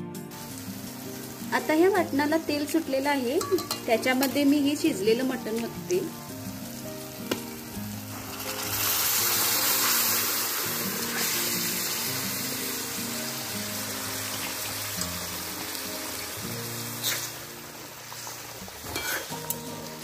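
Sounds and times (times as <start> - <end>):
meat and broth sizzling in oil: 0.1 - 20.0.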